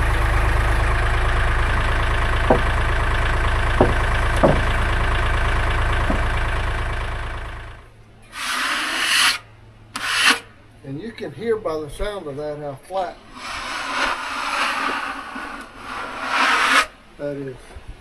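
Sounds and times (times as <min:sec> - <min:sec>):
sharp knocks: 0:00.0 - 0:06.6
sawmill engine running: 0:00.0 - 0:10.2
rasping rub on wood: 0:08.4 - 0:09.4, 0:10.0 - 0:10.5, 0:13.3 - 0:17.0.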